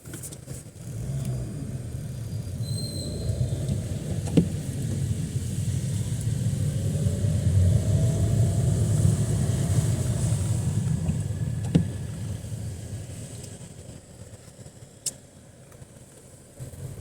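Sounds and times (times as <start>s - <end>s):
traffic rumble on wet street: 0.0s - 17.0s
vehicle passing: 0.9s - 13.7s.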